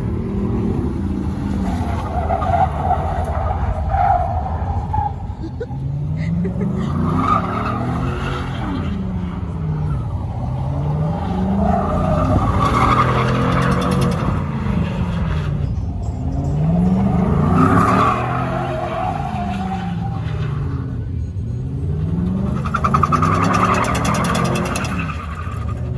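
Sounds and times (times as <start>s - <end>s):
tires squealing: 0.0s - 25.9s
engine revving: 5.9s - 25.9s.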